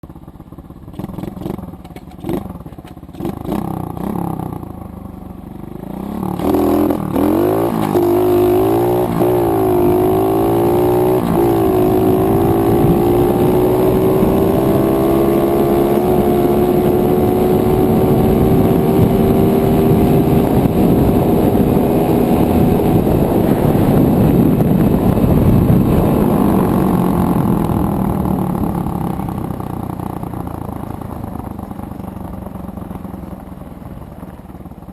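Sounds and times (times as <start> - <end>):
dirt bike engine revving: 0.9 - 4.7, 5.9 - 29.4.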